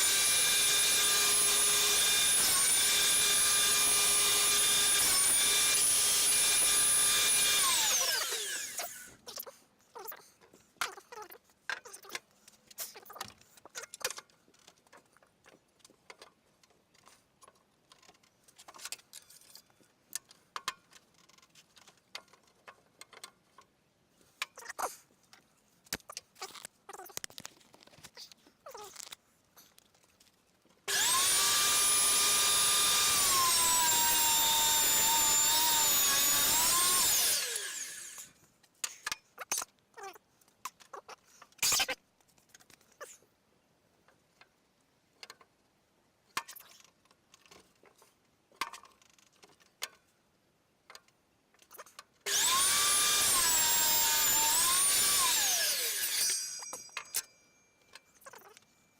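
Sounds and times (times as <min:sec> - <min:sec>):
power tool whining: 0:00.0 - 0:09.2, 0:30.9 - 0:38.3, 0:52.3 - 0:57.3.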